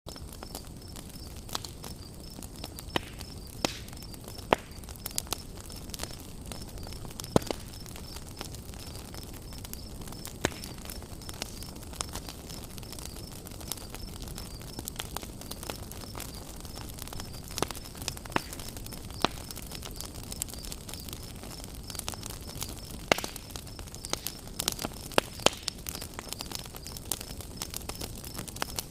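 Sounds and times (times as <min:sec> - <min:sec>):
campfire crackling and popping: 0:00.1 - 0:28.9
insect chirping: 0:00.1 - 0:28.9.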